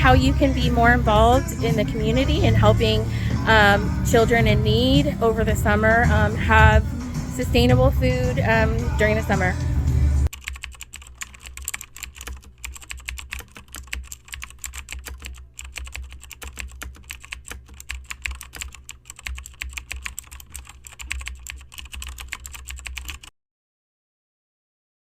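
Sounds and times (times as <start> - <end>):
steady low hum: 0.0 - 10.3
rapid irregular clicking: 10.2 - 23.3.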